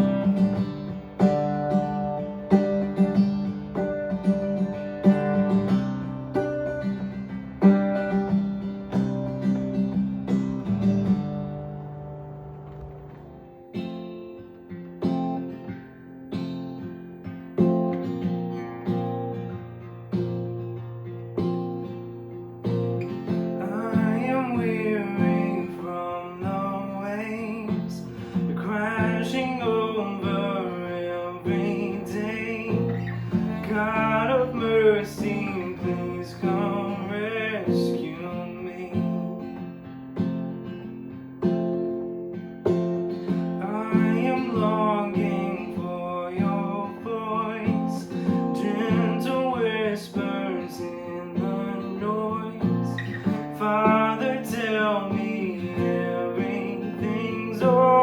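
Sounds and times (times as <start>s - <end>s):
strummed acoustic guitar: 0.0s - 58.0s
person singing: 23.6s - 39.2s, 43.6s - 58.0s.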